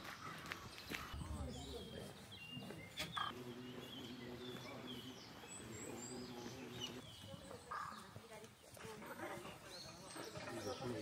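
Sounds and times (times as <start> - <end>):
high bird chirps: 0.8 - 8.2.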